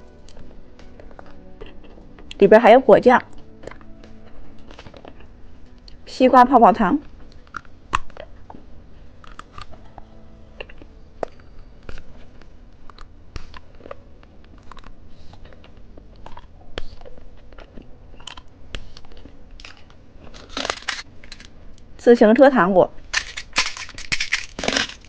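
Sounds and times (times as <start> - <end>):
crunching candy: 7.3 - 21.6, 23.1 - 25.0.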